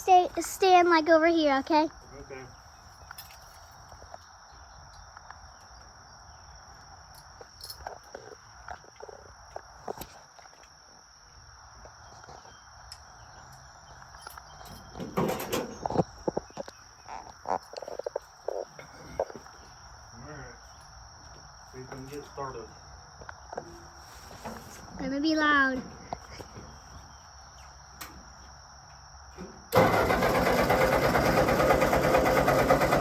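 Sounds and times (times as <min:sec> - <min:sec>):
insects chirring: 0:00.0 - 0:32.9
clattering knocks and thumps: 0:14.9 - 0:16.4.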